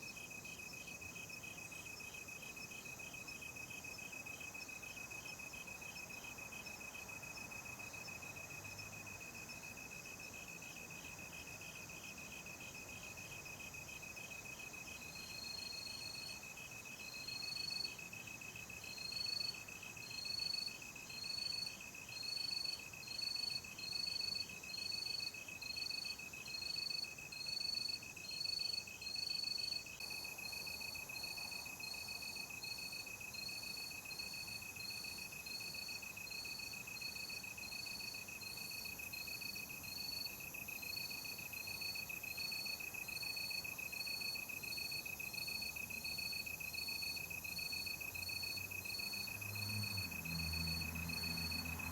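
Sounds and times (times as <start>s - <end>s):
higher cricket chirp: 0.1s - 51.9s
steady high cricket trill: 11.1s - 51.9s.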